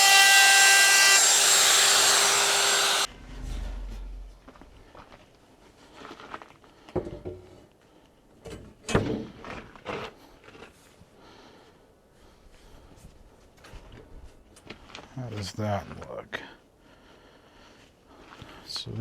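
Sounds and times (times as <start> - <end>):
power tool hum: 0.0 - 3.1.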